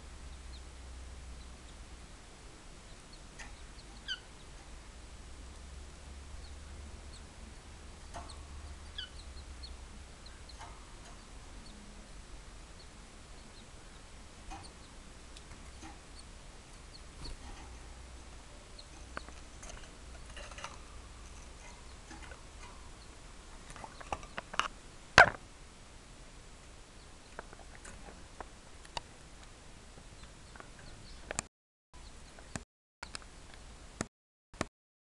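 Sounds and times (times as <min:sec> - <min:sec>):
chicks cheeping: 0:00.3 - 0:00.8, 0:02.8 - 0:04.7, 0:06.4 - 0:12.0, 0:12.6 - 0:24.5.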